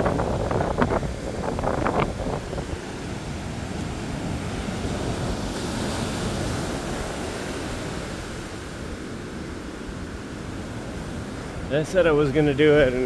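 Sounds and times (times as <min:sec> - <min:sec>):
ocean surf washing on beach: 0:00.0 - 0:13.0
wind buffeting microphone: 0:00.0 - 0:13.0.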